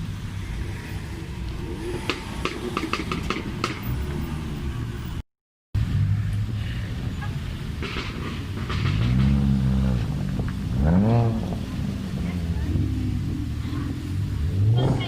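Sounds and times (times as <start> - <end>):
car engine revving: 5.8 - 15.0.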